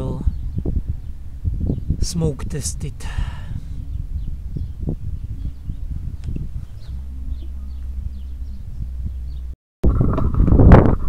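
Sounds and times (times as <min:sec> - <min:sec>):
wind rumble on microphone: 0:00.0 - 0:11.0
faint bird chirps: 0:03.7 - 0:09.5.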